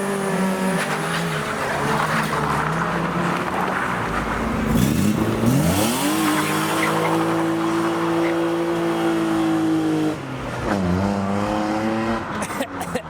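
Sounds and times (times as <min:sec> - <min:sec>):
car engine revving: 0:00.0 - 0:13.0
tyre squeal: 0:06.0 - 0:08.8.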